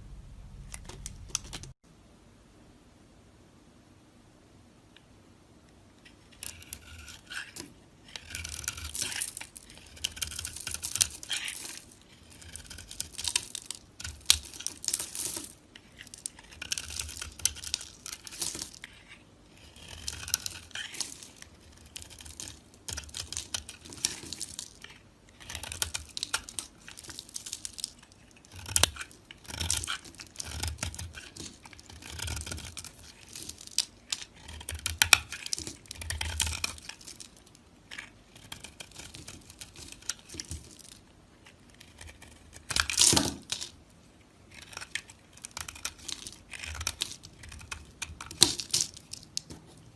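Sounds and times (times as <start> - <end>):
knife cutting through dry soap: 6.4 - 37.3, 44.5 - 49.9.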